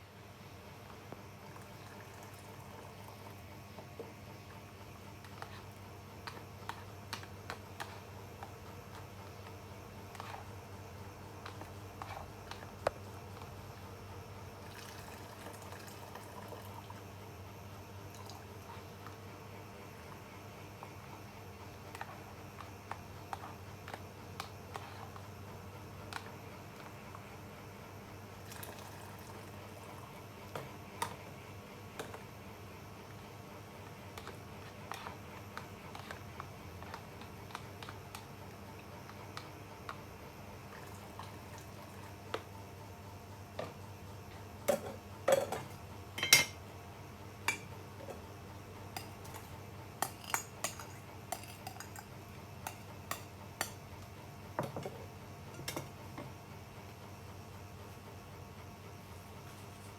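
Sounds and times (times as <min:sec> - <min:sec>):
utensils clinking against pans: 0:44.7 - 0:46.6, 0:49.0 - 0:52.1.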